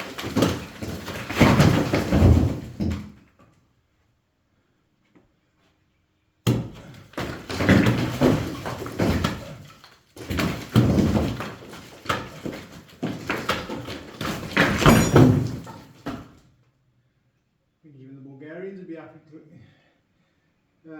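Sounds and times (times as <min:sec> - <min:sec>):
bricks and rubble clattering: 0:00.0 - 0:03.0, 0:07.1 - 0:09.6, 0:10.2 - 0:16.2
heavy thuds on brick wall: 0:06.4 - 0:09.6, 0:10.3 - 0:16.3.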